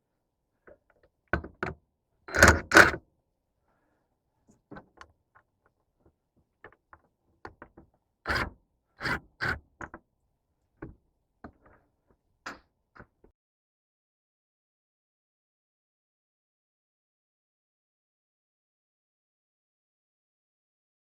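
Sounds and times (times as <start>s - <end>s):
knocks and clicks of hand work: 0.7s - 3.0s, 6.0s - 8.0s, 9.8s - 10.1s, 10.8s - 11.8s.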